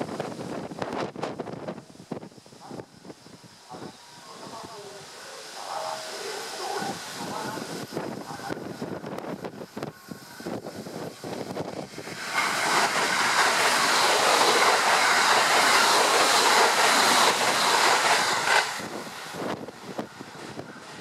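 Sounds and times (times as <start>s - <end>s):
wind buffeting microphone: 0.0s - 4.8s, 6.8s - 13.7s, 16.8s - 21.0s
train rushing past: 0.0s - 21.0s.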